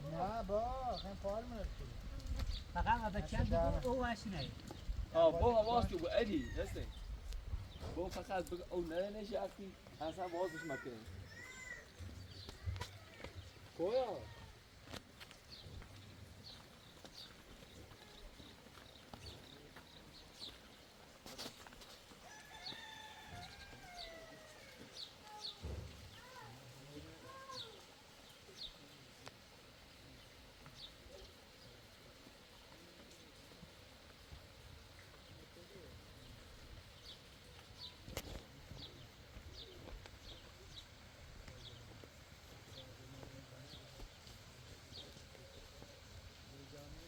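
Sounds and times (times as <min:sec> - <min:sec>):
small birds chirping: 0:00.0 - 0:47.0
rooster crowing: 0:06.2 - 0:06.9, 0:10.3 - 0:12.0, 0:22.2 - 0:24.9.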